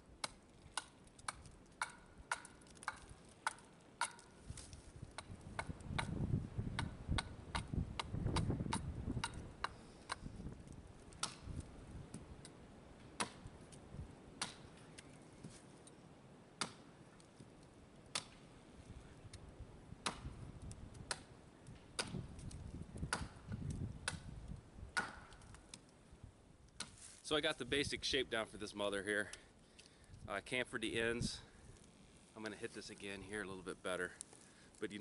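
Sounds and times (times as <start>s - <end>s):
axe chopping into log: 13.2s - 13.4s, 16.6s - 16.8s, 25.0s - 25.3s.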